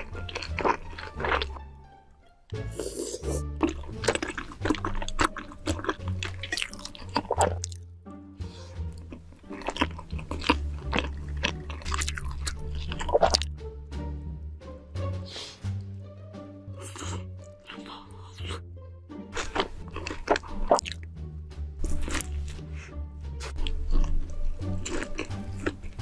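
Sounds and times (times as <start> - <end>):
person chewing chewy food: 0.0 - 1.6, 2.7 - 7.8, 8.5 - 13.5, 16.8 - 18.6, 19.3 - 21.1, 21.8 - 26.0
background music with bass: 0.0 - 26.0.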